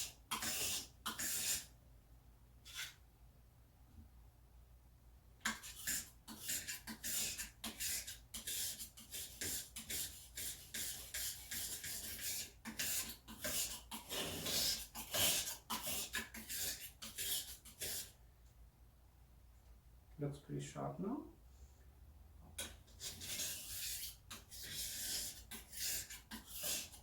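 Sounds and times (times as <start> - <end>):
knife scraping on whetstone: 0.0 - 1.7, 5.5 - 18.1, 22.9 - 27.0.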